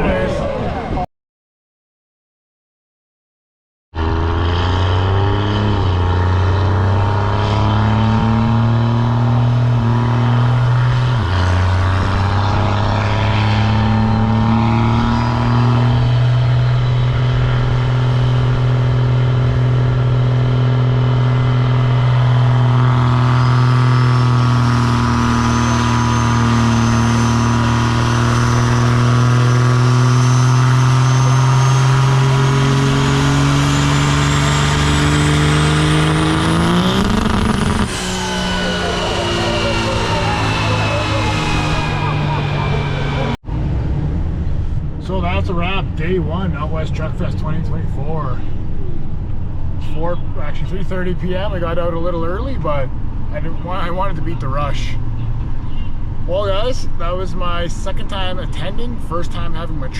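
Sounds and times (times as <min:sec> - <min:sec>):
truck engine running: 0:04.0 - 0:59.9.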